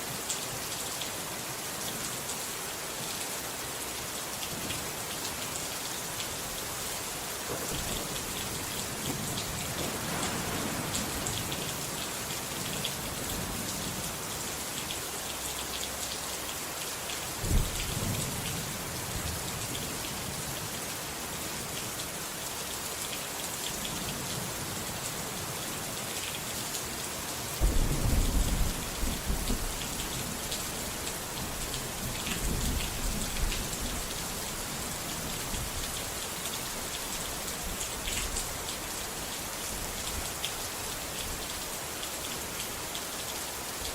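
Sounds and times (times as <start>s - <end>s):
steady rain falling: 0.0s - 43.9s
thunder: 9.0s - 13.7s, 17.4s - 18.2s, 27.6s - 29.9s.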